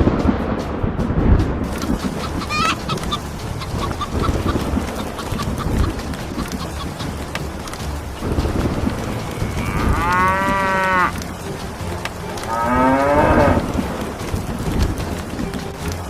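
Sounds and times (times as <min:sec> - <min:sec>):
steady background noise: 0:01.4 - 0:16.0
cow mooing: 0:09.3 - 0:11.1, 0:12.4 - 0:13.6.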